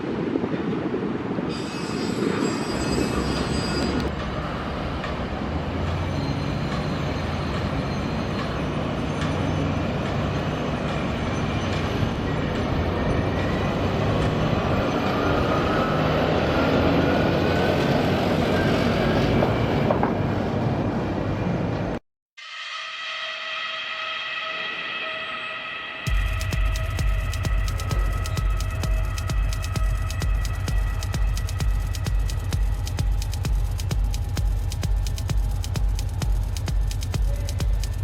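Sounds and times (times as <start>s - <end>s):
high metallic squealing: 1.5s - 4.1s, 5.8s - 9.7s, 22.4s - 32.3s
rising whine: 22.4s - 38.0s.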